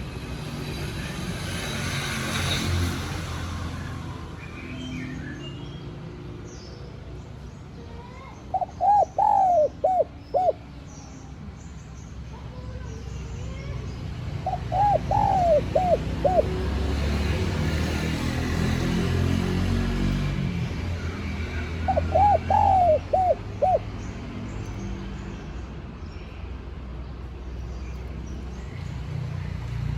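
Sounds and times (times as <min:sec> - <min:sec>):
dove cooing: 0:08.5 - 0:10.7, 0:14.4 - 0:17.5, 0:21.8 - 0:23.9.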